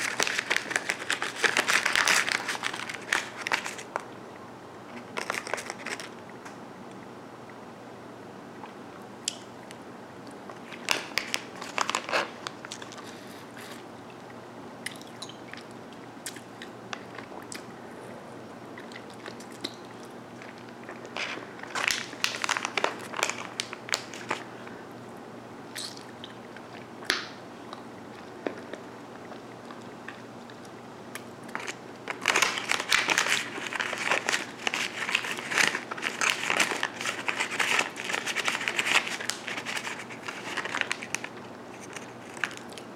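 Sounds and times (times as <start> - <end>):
hard candy crunching: 0.0 - 4.0, 20.4 - 24.4, 31.2 - 42.8.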